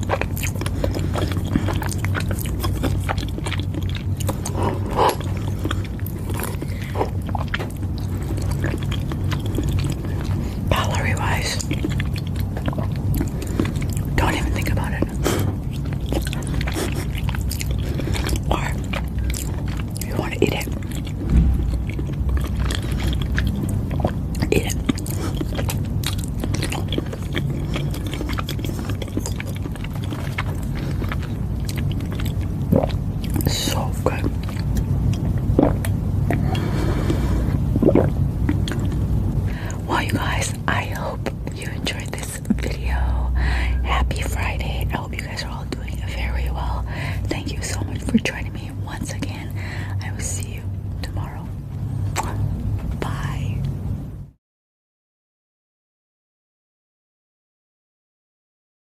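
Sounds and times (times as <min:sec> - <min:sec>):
wet mouth chewing clicks: 0:00.0 - 0:43.0, 0:52.1 - 0:52.4
steady low hum: 0:00.0 - 0:54.4.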